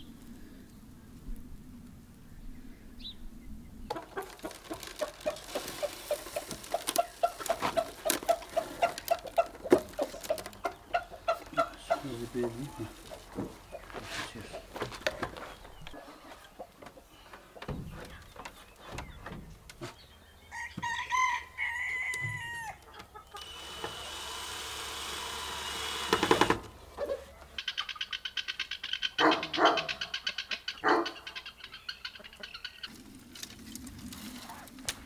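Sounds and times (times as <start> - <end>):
rapid fine pattering: 3.9 - 10.6
rooster crowing: 20.5 - 22.8.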